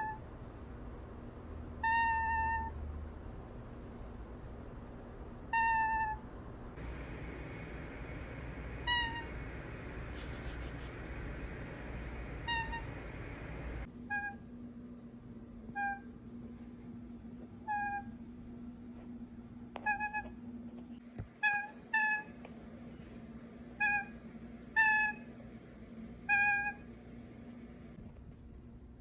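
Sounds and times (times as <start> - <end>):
animal cat-like calls: 1.8 - 2.8, 5.5 - 6.2, 8.8 - 9.5, 12.4 - 13.2, 15.7 - 16.1, 17.6 - 18.2, 26.3 - 26.9
steady hum: 2.7 - 19.8.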